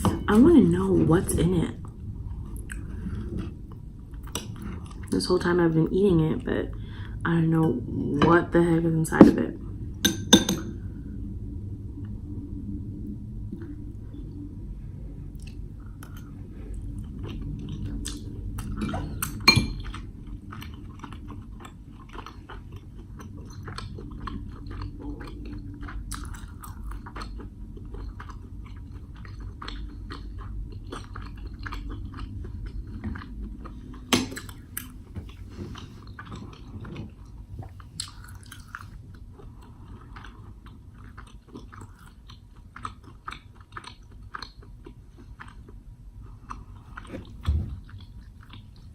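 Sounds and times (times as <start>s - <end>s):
chewing and biting food: 19.8s - 48.9s.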